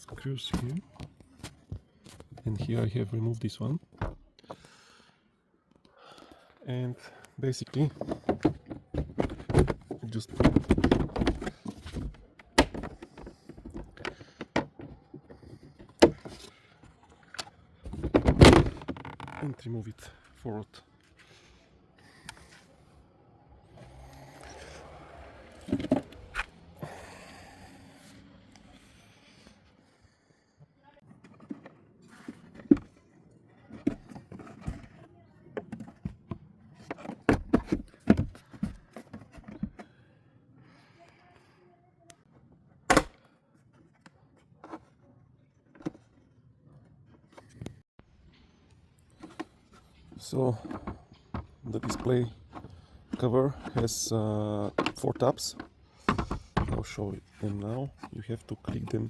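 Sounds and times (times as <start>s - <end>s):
plastic panels knocking and clicking: 7.8s - 16.5s, 17.8s - 19.5s, 35.6s - 39.9s, 50.5s - 59.0s
plastic panel clicks and knocks: 8.0s - 16.4s.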